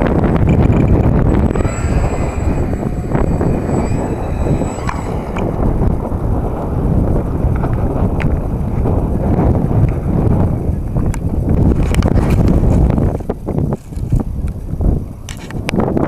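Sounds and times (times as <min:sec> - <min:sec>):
wind buffeting microphone: 0:00.0 - 0:16.0
faint high whine: 0:00.5 - 0:08.1.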